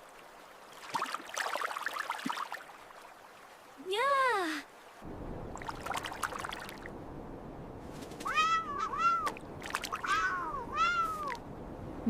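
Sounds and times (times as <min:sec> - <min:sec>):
hiss with crackles: 0:07.7 - 0:11.4
cat meowing: 0:08.2 - 0:09.4, 0:10.0 - 0:11.4.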